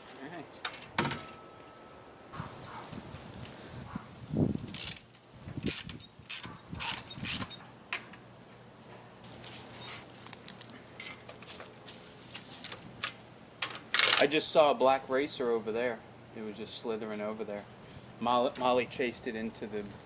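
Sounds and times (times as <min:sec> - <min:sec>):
clicks and rattles of fence work: 0:00.6 - 0:01.5, 0:04.6 - 0:09.1, 0:10.7 - 0:14.5.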